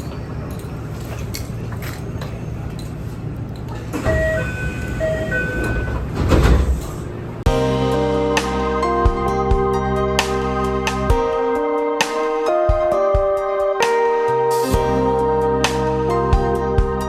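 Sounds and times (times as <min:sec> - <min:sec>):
train interior low rumble: 0:00.0 - 0:07.6
music: 0:07.5 - 0:17.0.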